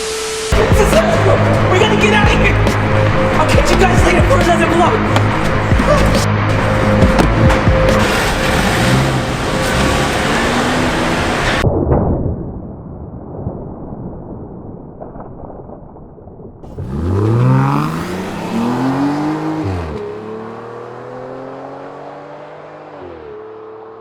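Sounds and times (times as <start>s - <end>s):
car engine revving: 0.6s - 11.6s, 16.7s - 24.0s.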